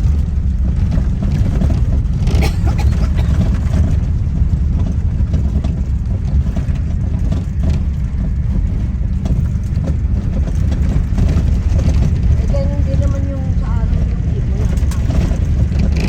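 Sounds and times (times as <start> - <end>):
engine and tyres rumbling: 0.0 - 16.0.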